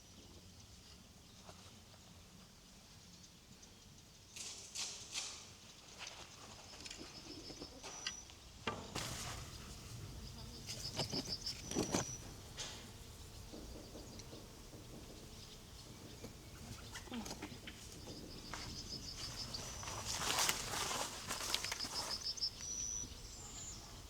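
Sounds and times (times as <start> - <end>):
small birds chirping: 0.0 - 4.8, 5.4 - 24.0
rustling from handling: 9.0 - 12.9, 19.2 - 22.7
soft knocks: 10.9 - 18.7.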